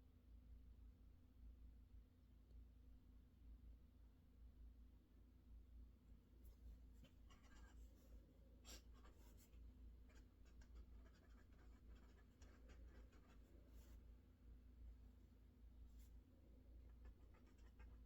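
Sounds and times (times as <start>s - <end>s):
pen scratching and tapping: 7.0s - 7.8s, 10.1s - 13.9s, 16.9s - 18.0s.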